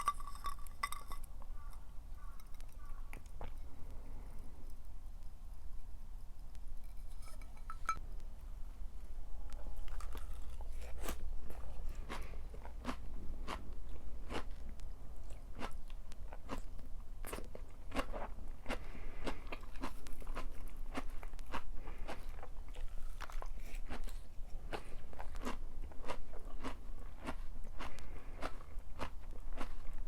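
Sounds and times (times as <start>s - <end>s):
person chewing crunchy food: 0.0s - 4.4s, 9.6s - 30.0s.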